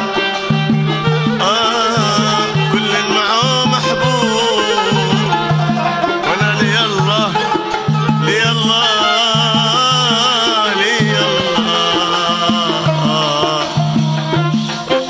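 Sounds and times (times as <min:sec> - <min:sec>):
folk music with pulsing beat: 0:00.0 - 0:15.0.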